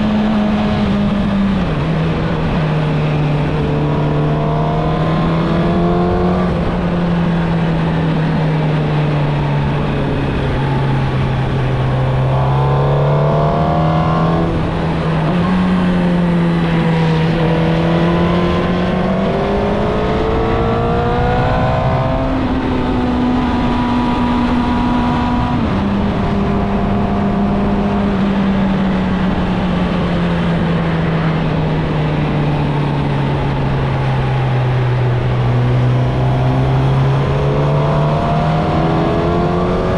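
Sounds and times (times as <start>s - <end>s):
steady rushing noise: 0.0s - 20.0s, 29.9s - 39.9s
motorcycle engine accelerating: 0.0s - 39.9s.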